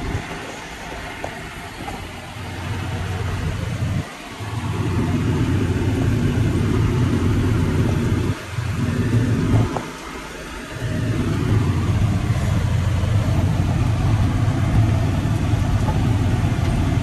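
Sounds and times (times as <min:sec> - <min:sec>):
tractor engine rumbling: 0:00.0 - 0:17.0.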